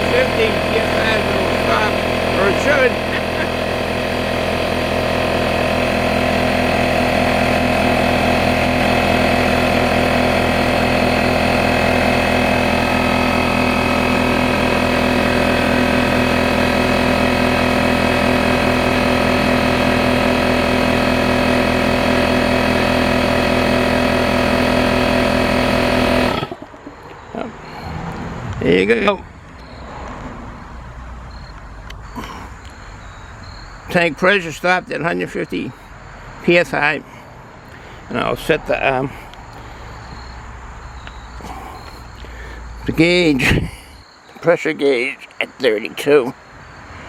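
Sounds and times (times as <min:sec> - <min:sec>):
air compressor running: 0:00.0 - 0:29.9, 0:30.5 - 0:44.3
pressure switch cutting out: 0:00.0 - 0:30.3.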